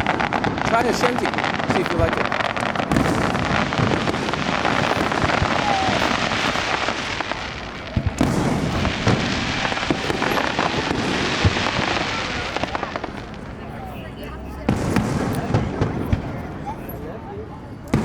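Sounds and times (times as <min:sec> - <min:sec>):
sharp firework bangs: 0:00.0 - 0:13.8, 0:14.6 - 0:16.6
fireworks crackling: 0:00.0 - 0:18.0.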